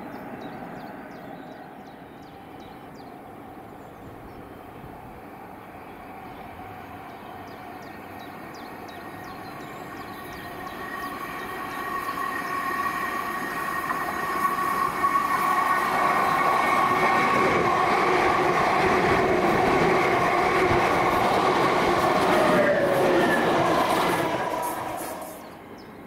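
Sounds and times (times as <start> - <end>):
passenger train whining: 0.0 - 26.0.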